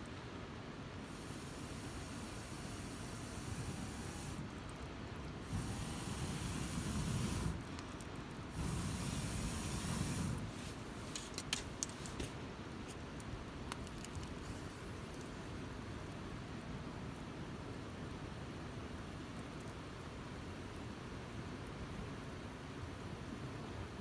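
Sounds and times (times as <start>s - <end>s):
campfire burning with hiss: 0.0s - 24.0s
fire crackling pops: 1.0s - 15.4s.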